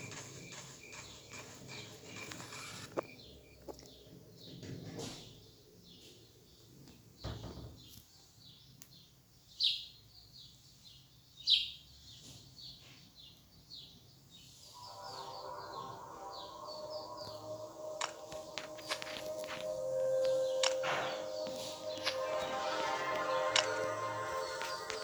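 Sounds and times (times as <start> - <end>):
music: 0.0 - 3.0, 14.7 - 25.0
small birds chirping: 0.0 - 25.0.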